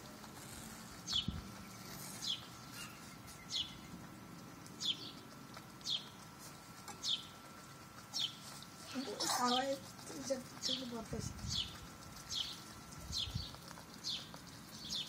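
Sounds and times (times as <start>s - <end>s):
bird chirping: 1.1s - 4.0s, 4.7s - 6.2s, 10.6s - 15.0s.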